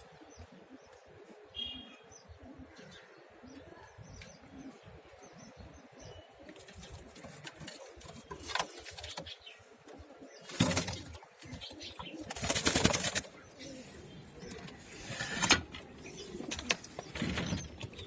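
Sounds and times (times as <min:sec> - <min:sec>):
pigeons cooing softly: 0:00.0 - 0:18.0
wings flapping: 0:10.5 - 0:13.4.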